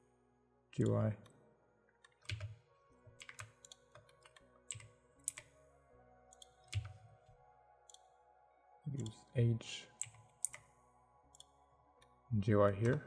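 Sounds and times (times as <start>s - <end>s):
faint background music: 0.0s - 13.0s
keyboard and mouse clicking: 2.0s - 2.6s, 3.2s - 5.5s, 6.3s - 7.0s, 8.9s - 9.2s, 10.0s - 10.7s, 11.3s - 11.5s, 12.8s - 13.0s.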